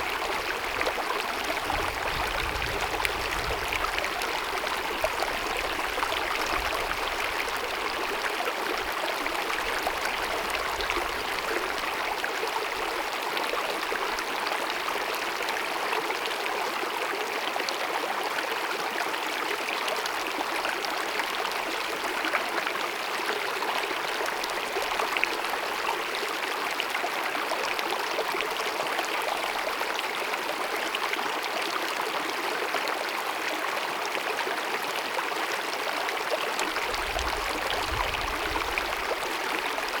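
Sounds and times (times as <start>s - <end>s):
stream babbling over rocks: 0.0s - 40.0s.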